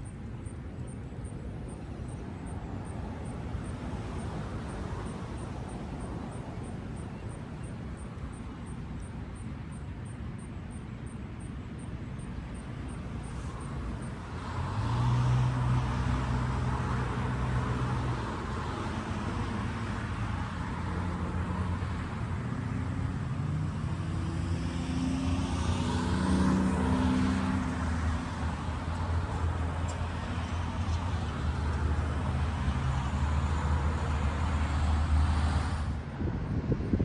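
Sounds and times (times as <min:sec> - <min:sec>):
engine passing by: 0:13.3 - 0:36.0.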